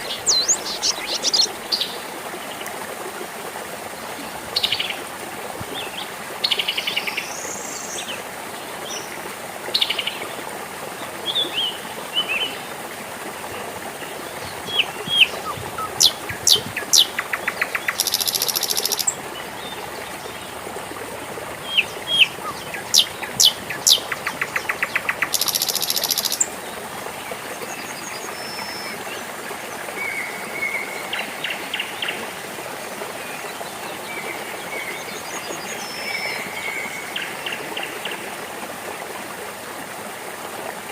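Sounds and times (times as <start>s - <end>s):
birds singing: 0.0s - 2.0s, 13.5s - 29.2s
water trickling in a stream: 0.0s - 40.9s
bird whistles and buzzy trill: 17.9s - 19.1s, 25.3s - 26.4s.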